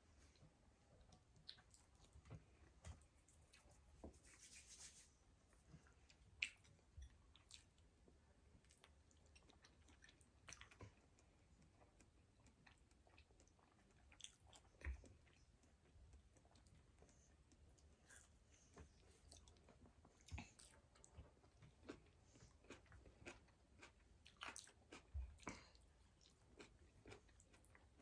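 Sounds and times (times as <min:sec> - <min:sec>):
chewing: 0:08.6 - 0:28.0.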